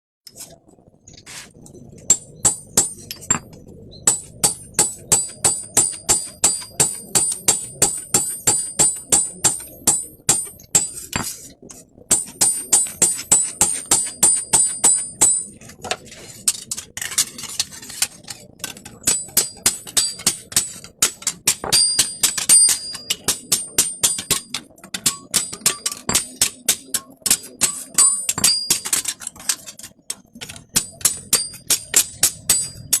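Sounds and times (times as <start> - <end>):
hammer striking steel: 2.1 - 3.4, 4.1 - 11.3, 12.1 - 15.6, 18.7 - 29.7, 30.6 - 33.0.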